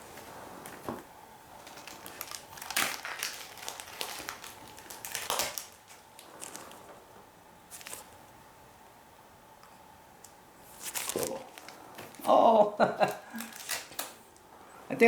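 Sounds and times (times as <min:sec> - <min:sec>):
comic books and packaging crinkling: 0:01.5 - 0:06.9, 0:07.7 - 0:08.1, 0:10.7 - 0:14.2.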